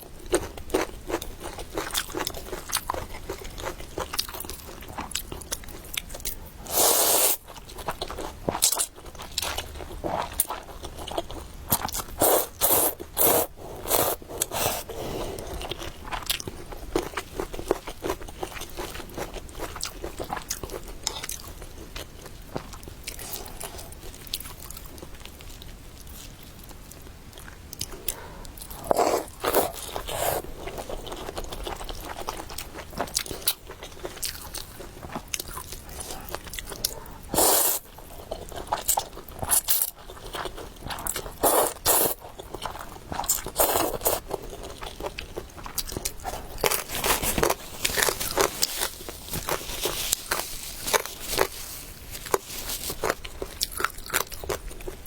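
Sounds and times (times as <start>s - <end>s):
person chewing noodles: 0.1s - 55.0s
slurping: 28.0s - 30.9s.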